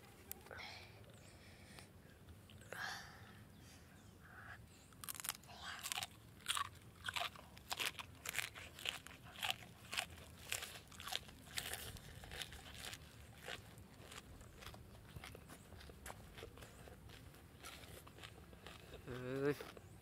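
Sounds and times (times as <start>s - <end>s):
person chewing crisp greens: 4.8s - 20.0s.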